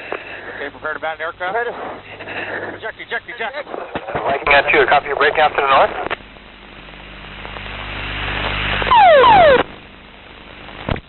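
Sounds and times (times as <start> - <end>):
cockpit noise rising: 8.6 - 9.8
loud burst with falling tones: 8.9 - 9.7.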